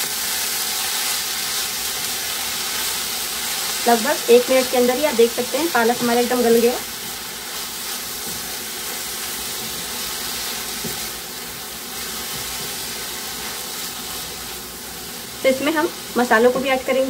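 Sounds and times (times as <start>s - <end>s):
spinach sizzling in hot oil: 0.0s - 17.0s
wooden spatula scraping: 3.8s - 17.0s.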